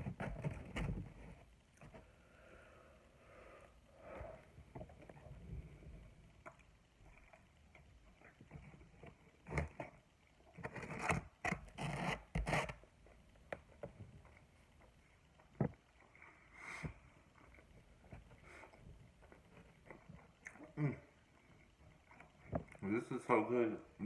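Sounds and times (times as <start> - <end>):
eating sounds: 15.4 - 23.1.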